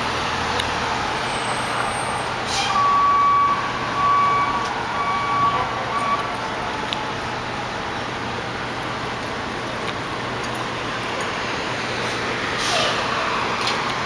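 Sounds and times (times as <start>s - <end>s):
truck reversing alarm beeps: 0.0s - 11.4s
street traffic noise: 0.0s - 14.0s.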